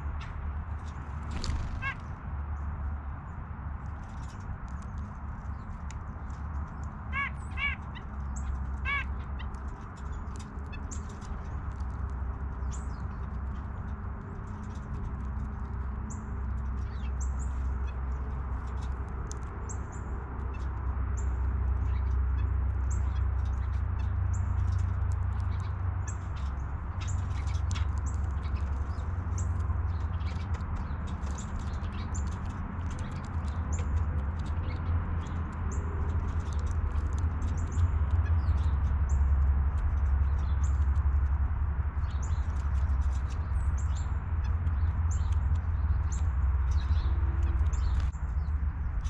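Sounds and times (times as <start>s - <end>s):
small birds chirping: 0.0s - 49.0s
harsh bird calls: 1.3s - 2.2s, 7.0s - 9.5s.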